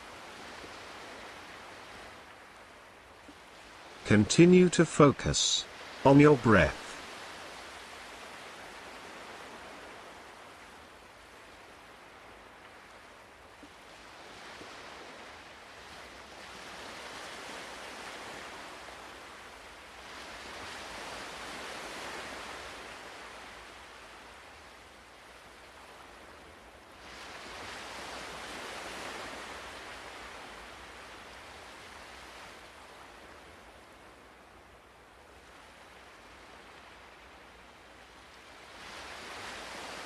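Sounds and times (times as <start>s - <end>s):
ocean surf washing in: 4.0s - 7.1s.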